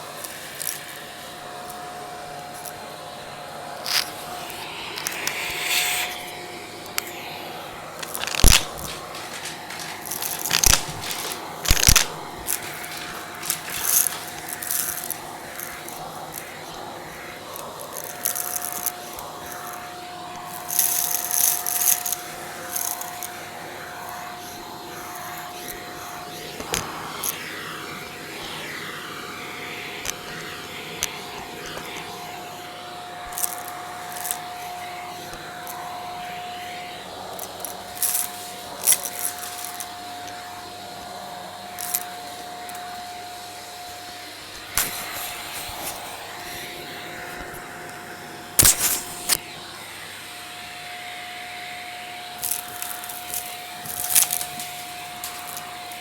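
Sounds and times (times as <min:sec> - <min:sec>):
vacuum cleaner whining: 0:00.0 - 0:56.0
crackling: 0:03.8 - 0:07.3, 0:08.0 - 0:16.5, 0:48.6 - 0:49.4
debris rattling up a hose: 0:08.0 - 0:16.0, 0:48.6 - 0:49.4, 0:52.4 - 0:56.0.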